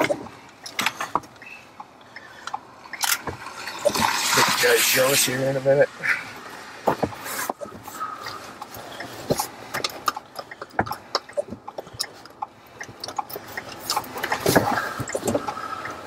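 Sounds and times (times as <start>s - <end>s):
raindrops tapping near microphone: 0.0s - 16.0s
wind and rain hiss: 0.2s - 10.4s
car passing on wet gravel: 3.4s - 7.5s.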